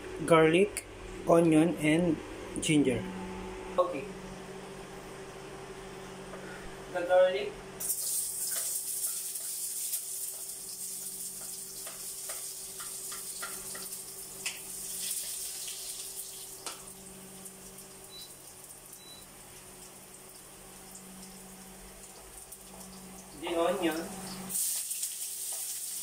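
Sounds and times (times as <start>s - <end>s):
garlic sizzling in a hot pan: 7.8s - 26.0s.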